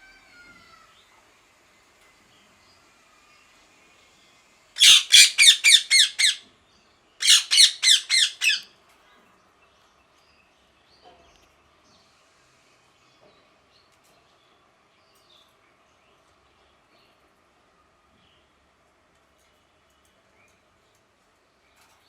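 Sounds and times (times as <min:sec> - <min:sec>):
parakeet screeching: 0:04.8 - 0:06.4, 0:07.2 - 0:08.6.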